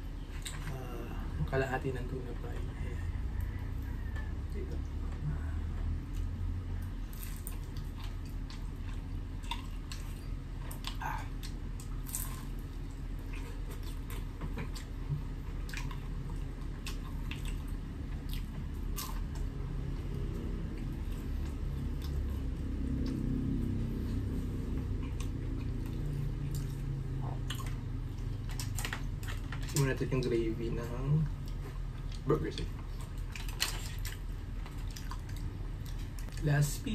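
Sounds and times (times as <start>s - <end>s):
steady low hum: 0.0s - 36.9s
person chewing and biting: 6.1s - 29.8s, 31.3s - 36.4s.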